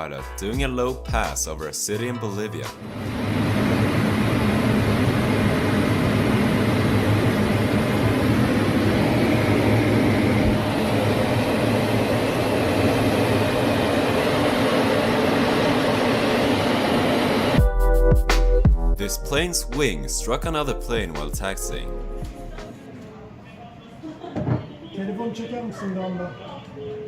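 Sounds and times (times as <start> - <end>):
fighter jet engine roar: 2.8 - 17.6.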